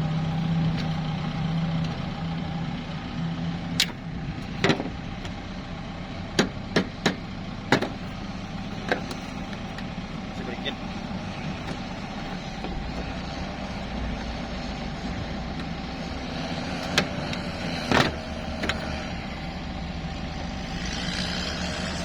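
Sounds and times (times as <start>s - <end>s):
vehicle engine idling: 0.0s - 22.0s
sharp knocks: 6.4s - 8.1s.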